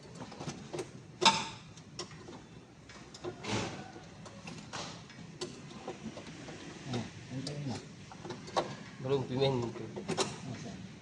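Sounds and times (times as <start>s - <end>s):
tools clicking and knocking: 9.6s - 10.5s.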